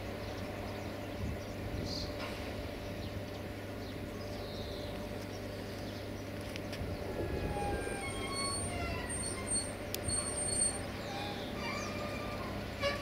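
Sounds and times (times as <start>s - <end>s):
locomotive drone: 0.0s - 13.0s
high flat-pitched squeals: 7.3s - 13.0s.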